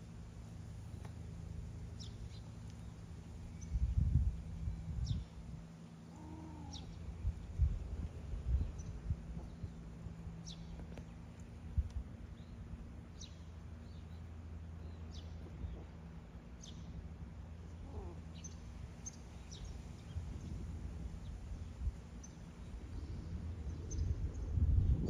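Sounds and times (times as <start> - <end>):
low rumble: 16.8 - 25.0.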